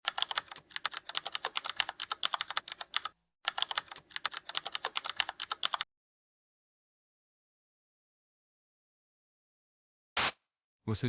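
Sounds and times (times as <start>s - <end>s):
typing on keyboard: 0.0s - 5.9s.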